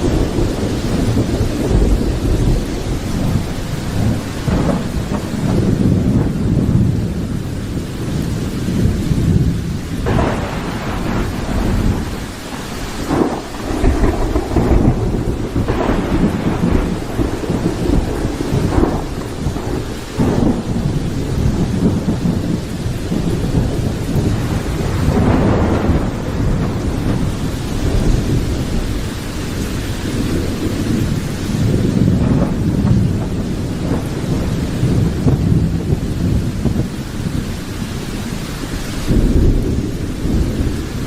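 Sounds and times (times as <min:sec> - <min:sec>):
steady rain: 0:00.0 - 0:41.0
thunder rumbling and crackling: 0:00.0 - 0:41.0.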